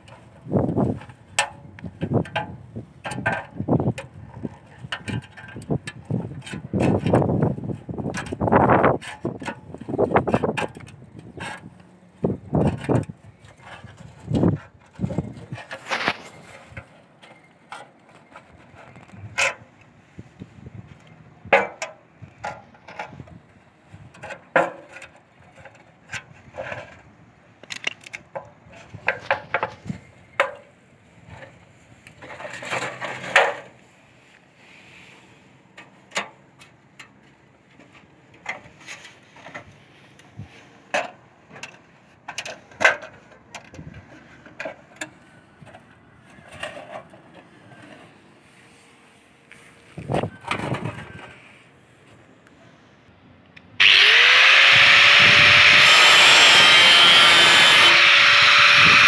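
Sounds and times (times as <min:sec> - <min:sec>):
scraping: 0:53.8 - 0:59.0.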